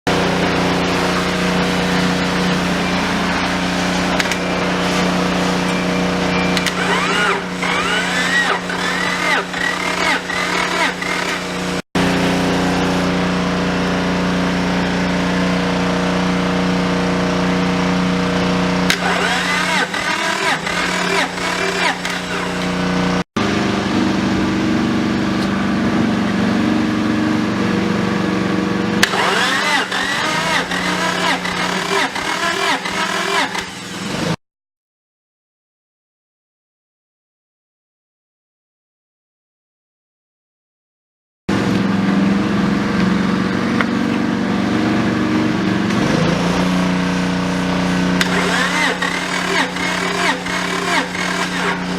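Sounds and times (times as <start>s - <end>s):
rising and falling whine: 0.1s - 16.1s.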